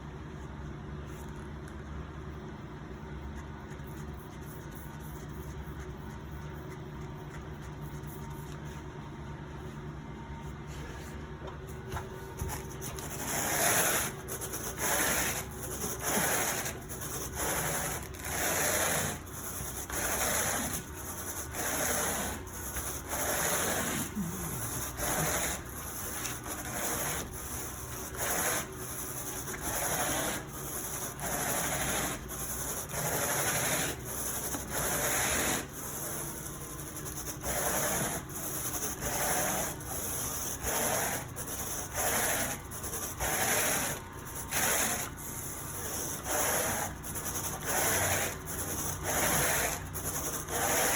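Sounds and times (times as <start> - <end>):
steady low hum: 0.0 - 50.9
carpet rake rasping through carpet: 12.5 - 50.9.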